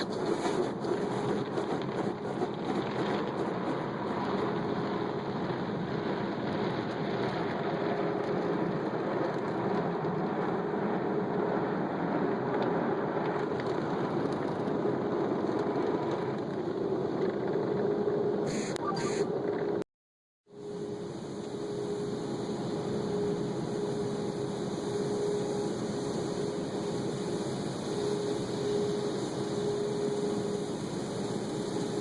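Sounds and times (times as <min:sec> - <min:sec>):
car wash machinery running: 0:00.0 - 0:19.2, 0:20.6 - 0:32.0
short hisses: 0:18.5 - 0:19.3.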